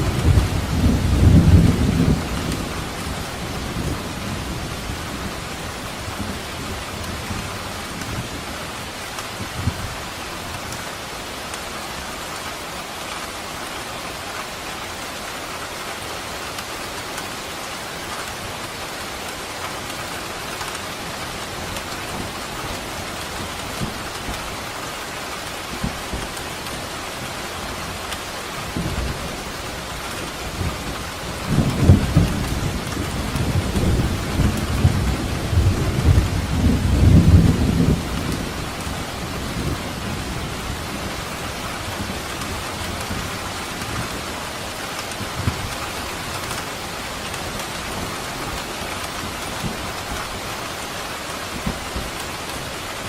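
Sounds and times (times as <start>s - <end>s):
rolling thunder: 0.0s - 7.5s, 28.7s - 44.2s
steady rain falling: 0.0s - 53.0s.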